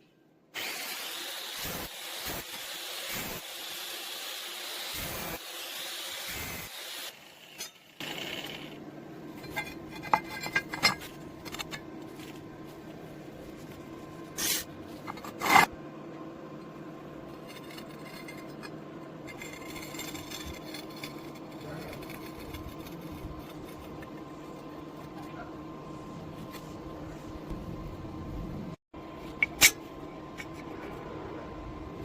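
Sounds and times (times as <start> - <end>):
steady low hum: 8.0 - 32.0
metal pieces clinking and scraping: 9.4 - 11.8, 14.4 - 15.7, 17.3 - 23.9.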